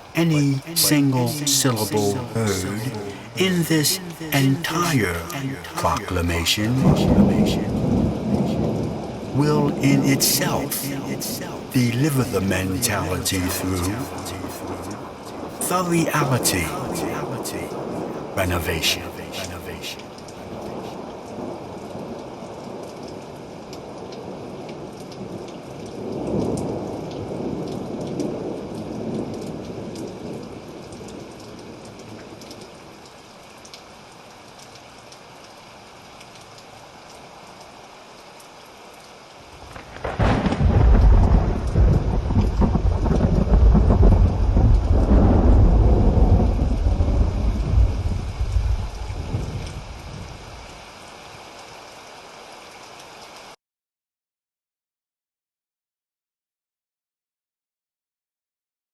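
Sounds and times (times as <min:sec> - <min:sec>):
steady rain falling: 0:00.0 - 0:53.6
thunder rumble: 0:06.8 - 0:10.4, 0:39.7 - 0:50.4.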